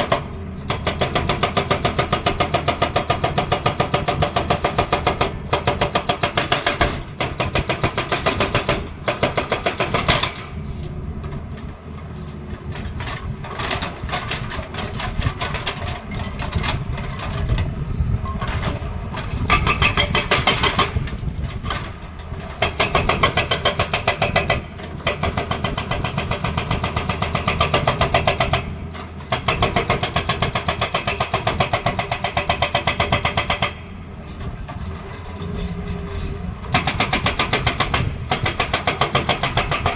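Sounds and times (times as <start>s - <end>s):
hydraulic breaker hammering: 0.0s - 10.6s, 18.2s - 33.9s, 36.2s - 39.9s.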